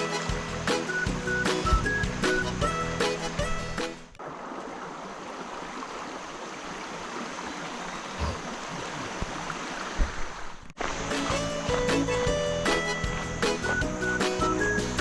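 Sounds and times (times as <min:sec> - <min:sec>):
background music: 0:00.0 - 0:04.1, 0:11.0 - 0:15.0
mountain stream flowing: 0:00.0 - 0:15.0.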